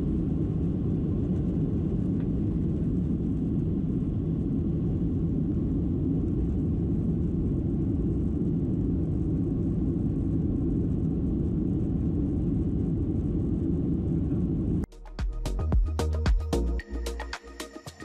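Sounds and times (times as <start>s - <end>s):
airliner cabin rumble: 0.0s - 14.9s
music with a beat: 14.9s - 18.0s.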